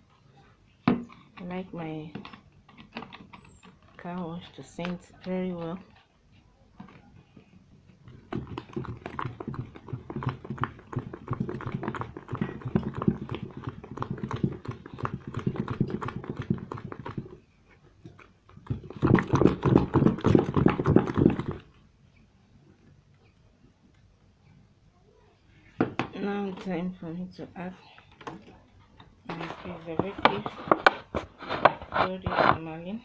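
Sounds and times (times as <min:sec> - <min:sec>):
thick liquid stirred by hand: 0:00.0 - 0:21.8.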